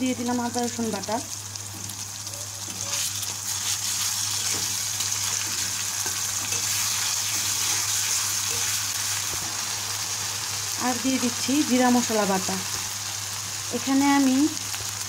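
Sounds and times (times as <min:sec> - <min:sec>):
onions sizzling in hot oil: 0:00.0 - 0:15.0
spatula scraping a pan: 0:02.6 - 0:09.6.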